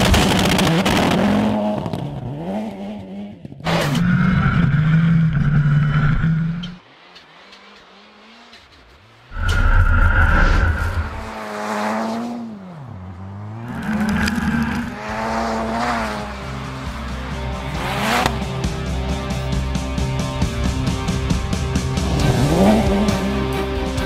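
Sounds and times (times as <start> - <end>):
car engine revving hard: 22.0 - 23.6.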